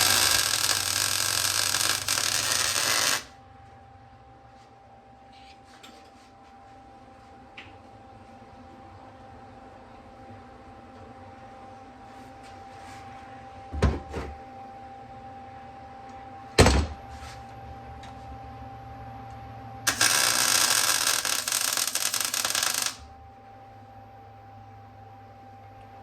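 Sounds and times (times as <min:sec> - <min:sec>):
welding arc crackling: 0:00.0 - 0:03.4, 0:19.9 - 0:23.1.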